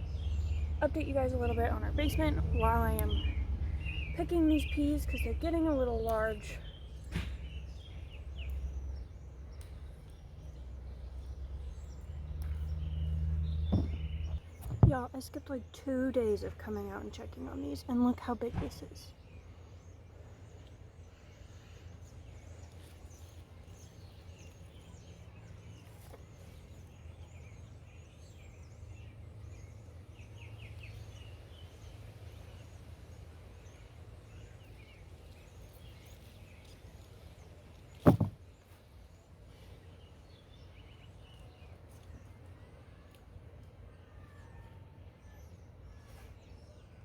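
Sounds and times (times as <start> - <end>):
steady low rumble: 0.0 - 17.6
sharp knock: 13.7 - 15.0, 38.1 - 38.4.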